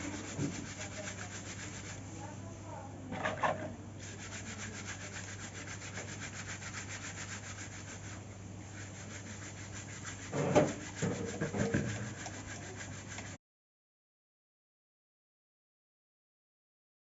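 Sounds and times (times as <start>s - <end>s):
low steady hum: 0.0s - 13.4s
scrubbing strokes: 0.0s - 13.4s.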